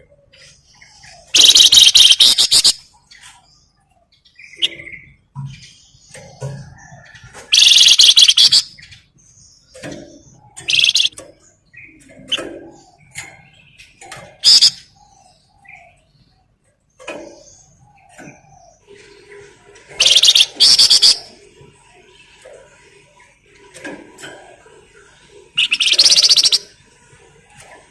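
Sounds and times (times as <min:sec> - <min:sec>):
bird chirps: 0:00.0 - 0:19.3, 0:19.9 - 0:21.4, 0:25.6 - 0:26.8
songbird chattering song: 0:00.0 - 0:19.3, 0:19.9 - 0:23.3, 0:25.1 - 0:26.8.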